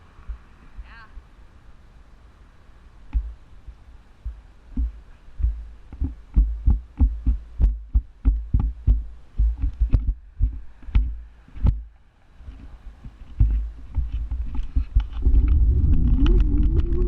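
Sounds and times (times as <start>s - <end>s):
sharp knocks and thumps: 4.2s - 11.9s, 12.6s - 17.0s
low scooter rumble: 12.5s - 17.0s.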